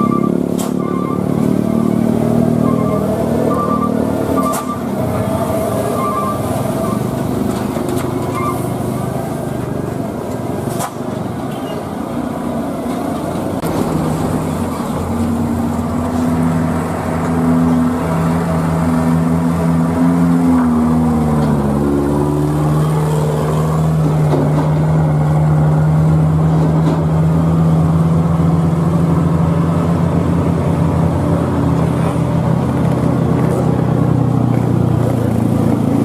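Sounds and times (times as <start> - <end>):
passing traffic: 0.0 - 36.0
truck engines running: 0.0 - 36.0
short beeps: 2.7 - 4.9.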